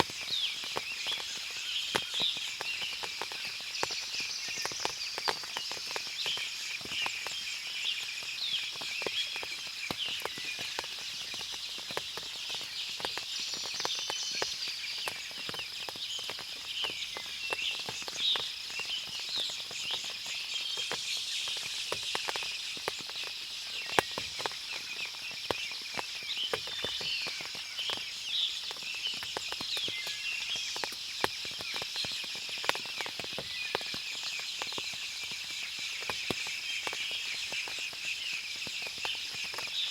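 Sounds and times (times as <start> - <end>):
birds chirping: 0.0 - 39.9
insect hum: 0.0 - 39.9
water dripping from foliage: 0.0 - 39.9.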